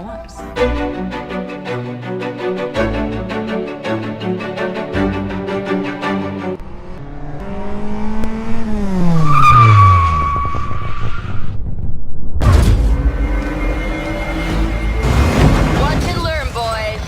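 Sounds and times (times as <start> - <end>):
music: 0.0 - 6.6, 12.4 - 17.0
car engine passing by: 6.5 - 11.6
sudden loud hit: 12.4 - 16.5.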